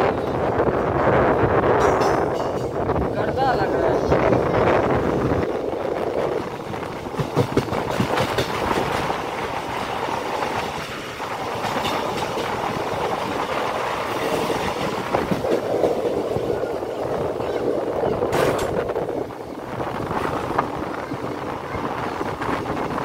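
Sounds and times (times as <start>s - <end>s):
train rolling noise: 0.0s - 23.0s
wheel clacks over rail joints: 7.1s - 9.3s, 10.6s - 12.8s, 18.2s - 18.9s.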